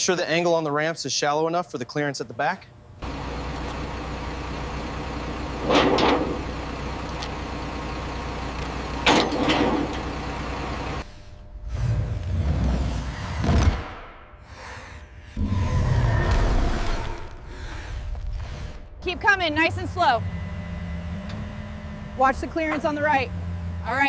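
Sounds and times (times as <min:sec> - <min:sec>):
machine droning: 0:01.7 - 0:24.0.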